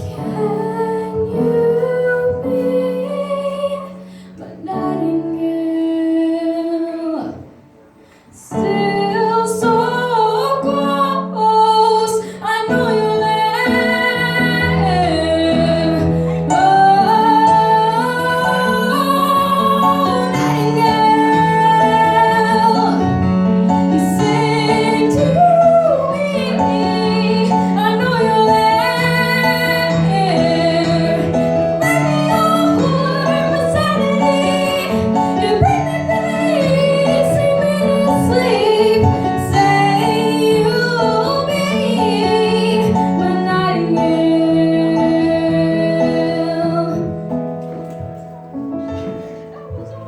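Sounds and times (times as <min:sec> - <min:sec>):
girl singing: 0:00.0 - 0:07.5, 0:08.5 - 0:47.1
instrumental accompaniment: 0:07.3 - 0:50.0.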